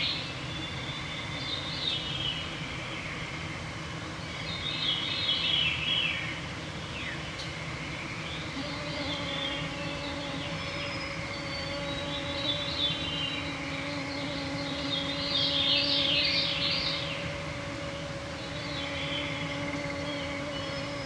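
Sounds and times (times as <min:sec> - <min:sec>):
songbirds singing: 0:06.9 - 0:21.0
mosquitoes whining: 0:08.5 - 0:21.0.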